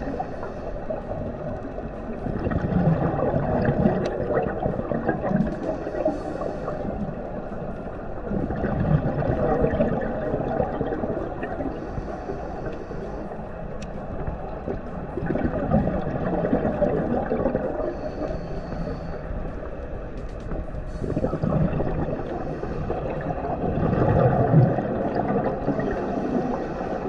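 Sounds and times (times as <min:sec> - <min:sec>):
regulator hissing inhale: 0:00.0 - 0:02.0, 0:05.4 - 0:08.1, 0:11.6 - 0:14.2, 0:17.7 - 0:23.6, 0:25.6 - 0:27.0
bubbles gurgling underwater: 0:00.0 - 0:12.1, 0:14.1 - 0:18.2, 0:20.9 - 0:27.0.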